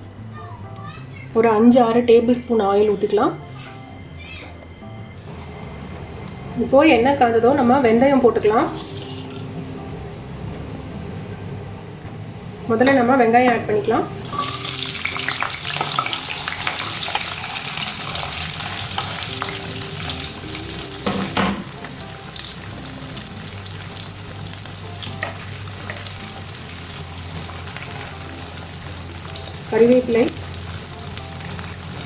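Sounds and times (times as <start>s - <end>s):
shallots sizzling in hot oil: 6.8s - 9.6s, 13.7s - 32.0s.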